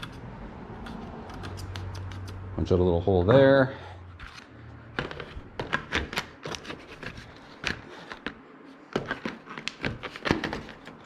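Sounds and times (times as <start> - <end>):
sharp clicks and taps: 0.8 - 2.4.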